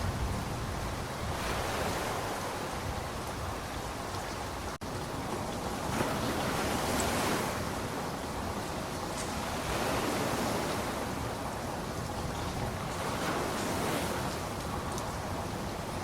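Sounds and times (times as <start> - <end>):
steady rain falling: 0.0 - 16.0
faint raindrop ticks: 8.6 - 9.5, 11.6 - 15.8.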